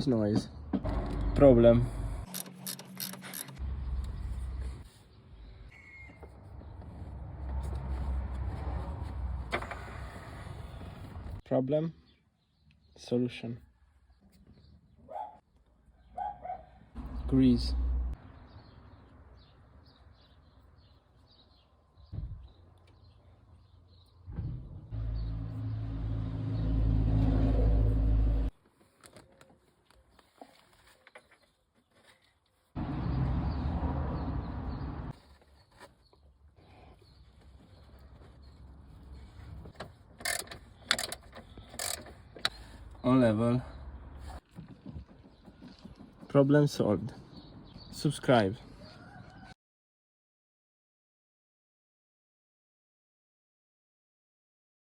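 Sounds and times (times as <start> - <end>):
brief thump: 24.3 - 24.8.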